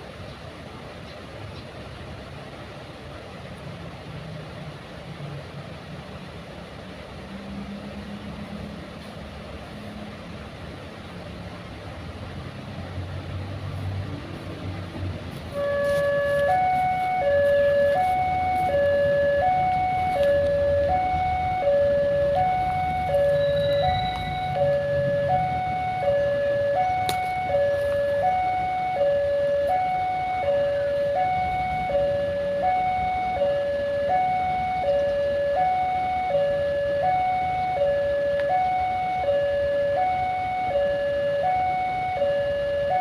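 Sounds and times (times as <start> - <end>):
two-tone electronic warning alarm: 15.5 - 43.0.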